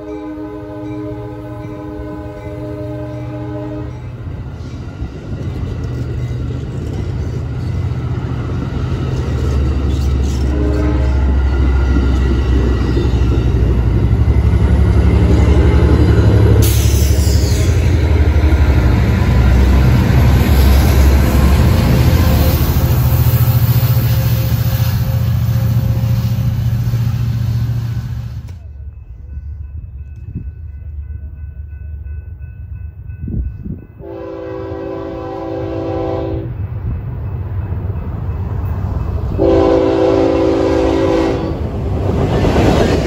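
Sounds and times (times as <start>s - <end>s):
locomotive horn: 0.0s - 4.2s, 10.2s - 11.5s, 34.0s - 36.5s, 39.4s - 41.6s
train rumble: 0.0s - 43.0s.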